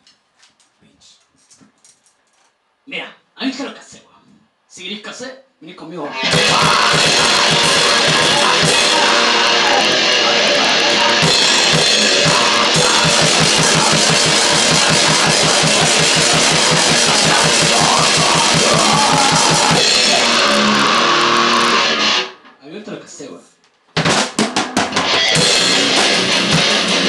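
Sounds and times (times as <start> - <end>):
grindcore band playing: 6.2 - 22.4, 24.0 - 27.0
rapid bass drum beats: 6.3 - 21.7, 24.0 - 27.0.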